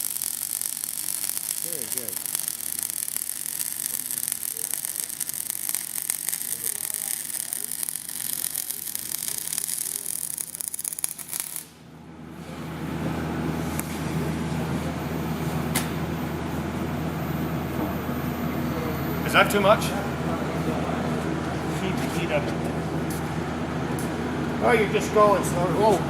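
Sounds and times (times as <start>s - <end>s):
welding arc crackling: 0.0s - 11.8s.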